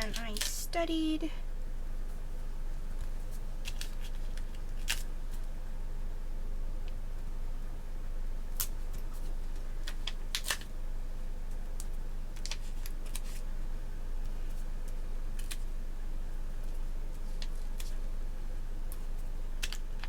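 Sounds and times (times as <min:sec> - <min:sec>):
paper sheets crackling: 0:00.0 - 0:01.1, 0:03.2 - 0:05.5
steady low hum: 0:00.0 - 0:20.0.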